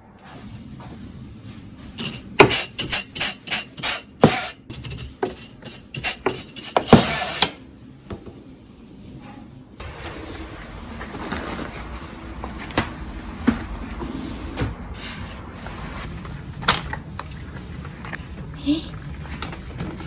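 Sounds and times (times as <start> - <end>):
scrubbing on a hard surface: 3.8 - 7.5.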